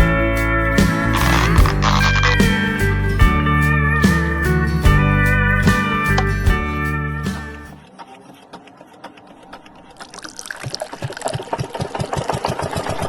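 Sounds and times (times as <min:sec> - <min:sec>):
background music: 0:00.0 - 0:07.8.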